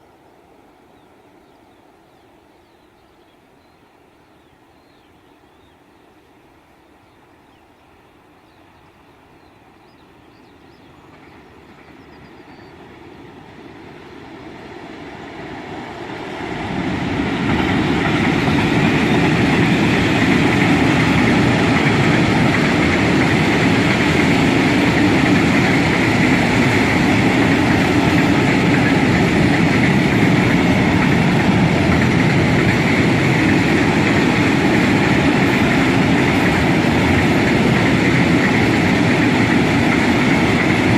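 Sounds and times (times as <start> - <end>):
freight train passing: 0.0 - 40.9
train wagons rolling on rails: 10.8 - 40.9.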